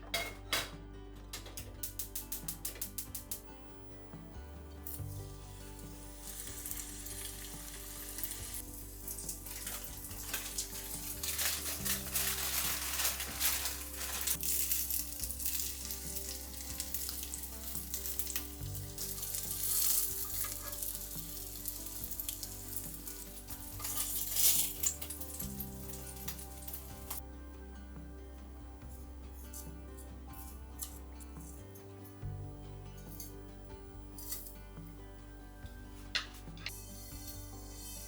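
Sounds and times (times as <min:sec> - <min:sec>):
food frying in hot oil: 0:05.6 - 0:27.2.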